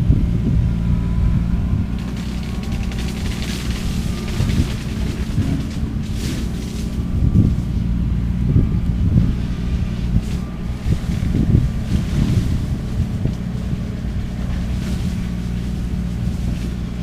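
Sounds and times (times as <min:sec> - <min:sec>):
skid steer engine under load: 0:00.0 - 0:17.0
shredder head cutting cane: 0:02.0 - 0:07.1.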